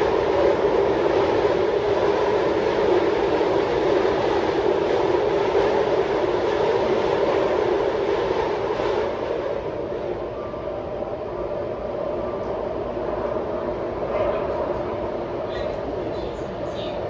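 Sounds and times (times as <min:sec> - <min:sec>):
train wheels rumbling on rail: 0:00.0 - 0:10.2.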